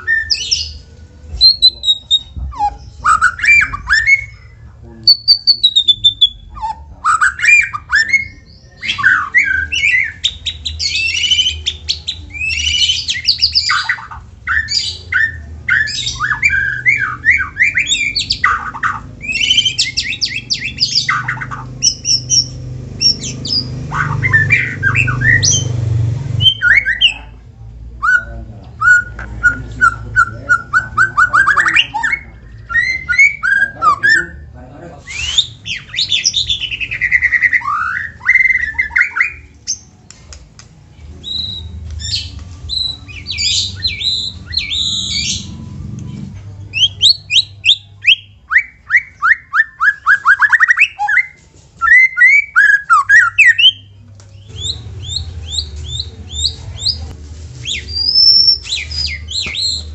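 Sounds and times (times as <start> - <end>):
bird singing whistles and churrs: 0.0 - 0.8, 1.4 - 27.4, 28.0 - 39.9, 41.2 - 46.0, 46.7 - 59.9
low rumble: 54.4 - 58.2.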